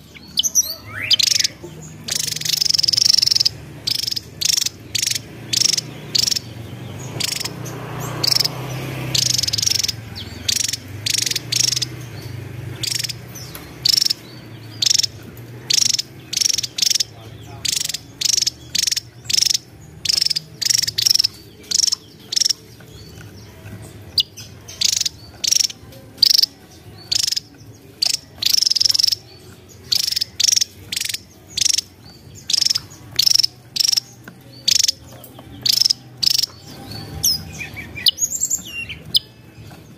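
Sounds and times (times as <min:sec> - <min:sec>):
bird calling high sharp notes: 0:00.0 - 0:12.0, 0:12.8 - 0:22.8, 0:29.9 - 0:35.0.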